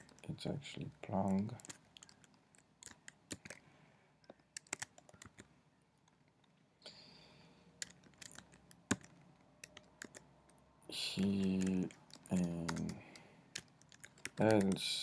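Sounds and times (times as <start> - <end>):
computer keyboard typing: 1.0 - 3.6, 4.2 - 5.5, 7.7 - 15.0.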